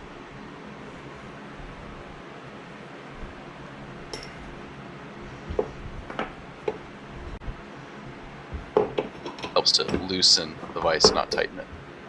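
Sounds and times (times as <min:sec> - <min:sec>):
metallic clinks and knocks: 0:04.1 - 0:04.6, 0:08.6 - 0:11.7
vise handle clanking: 0:08.6 - 0:11.8.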